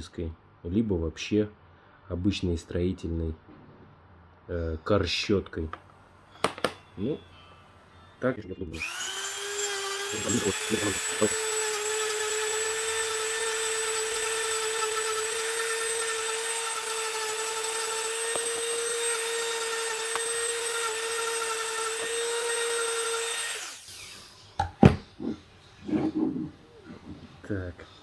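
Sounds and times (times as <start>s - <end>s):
rotary tool whining: 8.8s - 24.6s.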